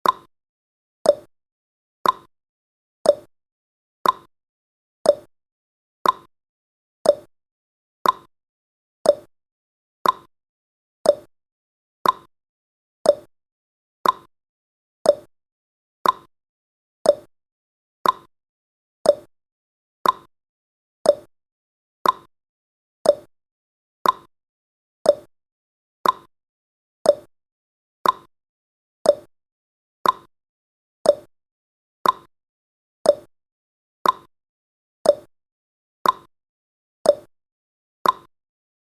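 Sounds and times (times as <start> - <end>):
clock ticking: 2.0 - 2.3, 4.0 - 4.3, 6.0 - 6.3, 8.0 - 8.3, 10.0 - 10.3, 12.0 - 12.3, 14.0 - 14.3, 16.0 - 16.3, 18.0 - 18.3, 20.0 - 20.3, 22.0 - 22.3, 23.1 - 23.3, 24.0 - 24.3, 26.0 - 26.3, 28.0 - 28.3, 29.1 - 29.3, 30.0 - 30.3, 31.1 - 31.3, 32.0 - 32.3, 33.1 - 33.3, 34.0 - 34.3, 36.0 - 36.3, 38.0 - 38.3.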